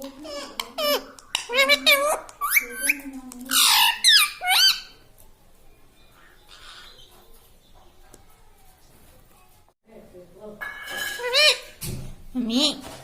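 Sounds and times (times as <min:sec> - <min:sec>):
parrot harsh squawks: 0:00.5 - 0:04.9.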